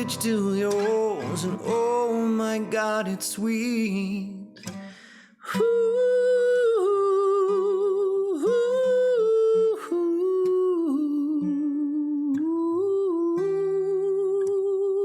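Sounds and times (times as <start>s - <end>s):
acoustic guitar: 0.0s - 15.0s
wordless vocal melody: 0.0s - 15.0s.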